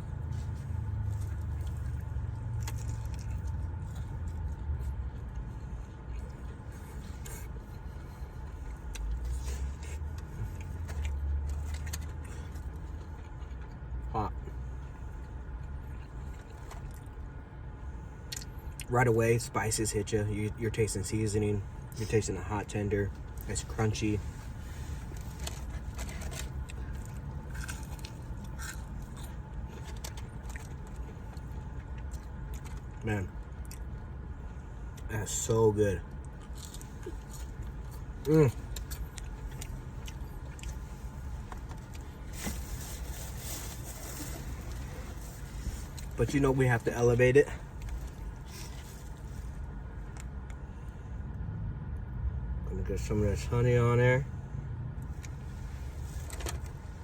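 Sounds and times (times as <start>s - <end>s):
car idling hum: 0.0s - 57.0s
crunching of eating: 0.1s - 14.4s, 23.1s - 46.6s.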